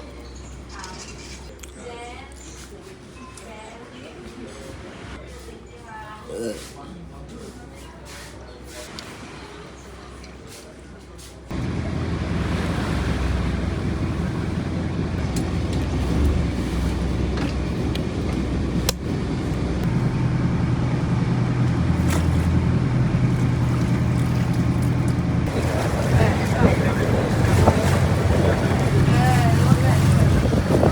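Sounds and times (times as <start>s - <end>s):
engine droning: 11.5s - 30.9s.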